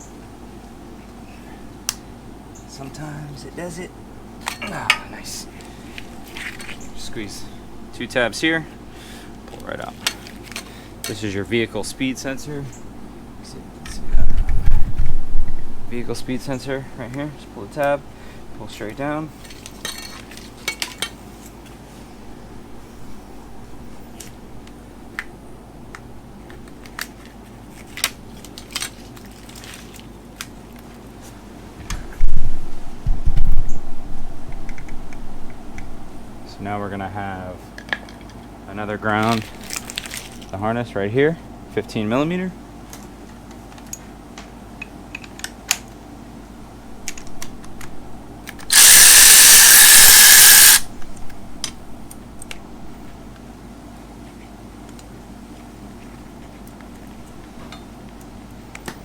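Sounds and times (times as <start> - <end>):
steady low hum: 0.0 - 19.6
power tool running: 48.7 - 50.9.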